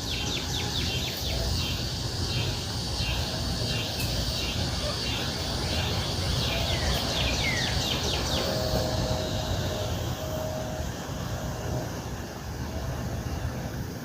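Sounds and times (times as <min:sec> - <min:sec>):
birds chirping: 0:00.0 - 0:10.8.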